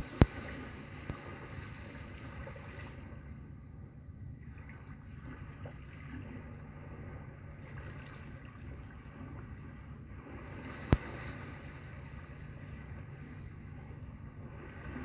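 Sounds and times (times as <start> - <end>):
ocean-like rushing from tv speaker: 4.6 - 15.0.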